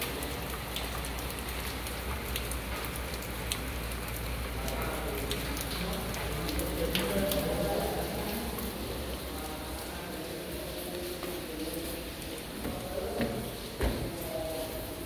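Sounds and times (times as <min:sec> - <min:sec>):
rain on stone paving and grass: 0:00.0 - 0:15.0
sharp ticks of raindrops: 0:00.0 - 0:15.0.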